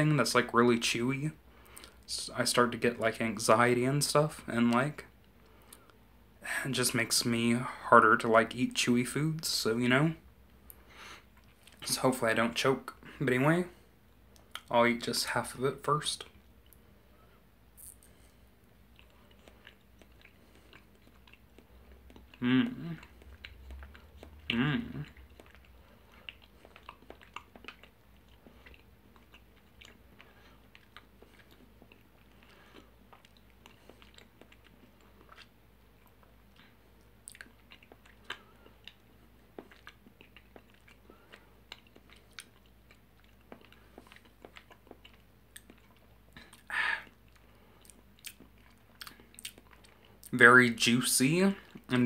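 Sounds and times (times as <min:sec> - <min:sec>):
mouth chewing wet clicks: 0:14.3 - 0:14.7, 0:17.8 - 0:50.4.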